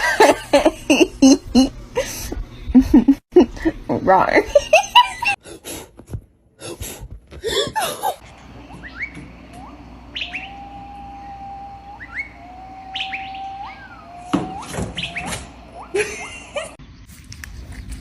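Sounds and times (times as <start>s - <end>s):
loud jumbled noises: 8.2s - 16.8s
bird chirping: 8.5s - 18.0s
long whistled bird notes: 8.6s - 16.5s.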